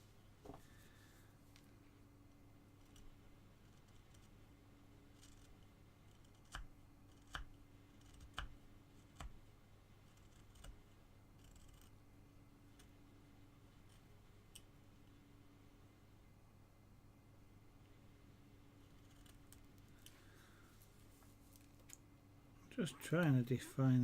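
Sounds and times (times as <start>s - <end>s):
faint steady hum: 0.0s - 24.0s
carving gouge cutting wood: 2.8s - 4.4s, 5.1s - 9.4s, 10.0s - 10.8s, 11.4s - 11.9s.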